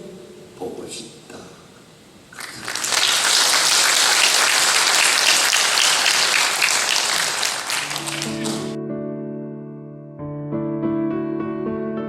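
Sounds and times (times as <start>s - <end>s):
audience applause: 2.3s - 8.8s.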